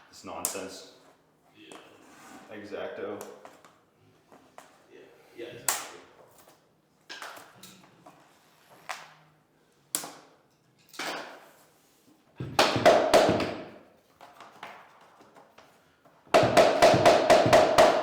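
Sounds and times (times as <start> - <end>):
hammer knocking on flooring planks: 12.4 - 13.8, 16.3 - 18.0.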